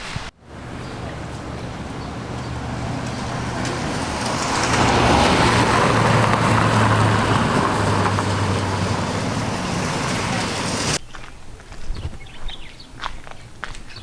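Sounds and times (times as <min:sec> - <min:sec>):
vehicle engine running: 0:00.4 - 0:11.0.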